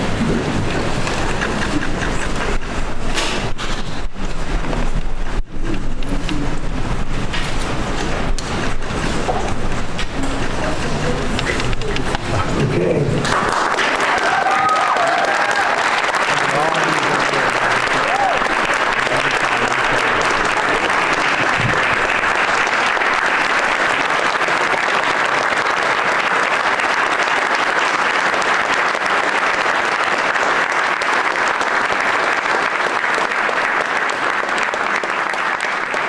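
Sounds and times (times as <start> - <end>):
crowd applauding: 0.0 - 36.0
crowd cheering: 11.6 - 36.0.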